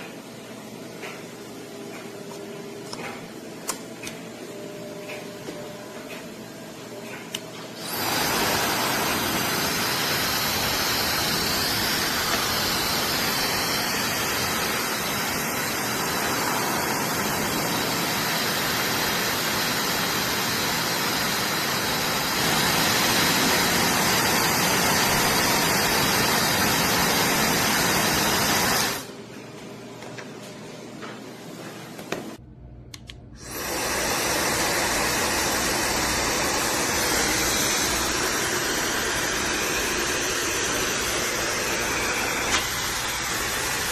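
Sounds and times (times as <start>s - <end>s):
hair dryer running: 7.0s - 29.1s, 33.0s - 43.9s.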